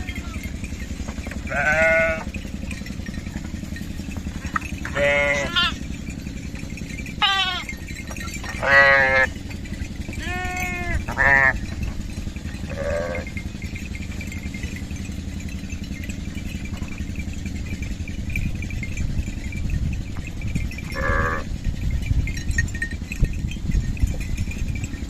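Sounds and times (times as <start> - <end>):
lambs bleating: 0.0 - 0.5, 1.5 - 2.3, 4.9 - 5.8, 7.2 - 7.8, 8.5 - 9.3, 10.2 - 11.6, 12.7 - 13.3, 20.9 - 21.5
low background rumble: 0.0 - 25.0.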